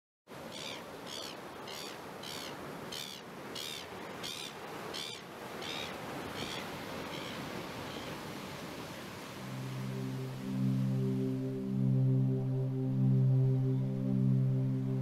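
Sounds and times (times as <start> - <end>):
bird calling: 0.5 - 8.2.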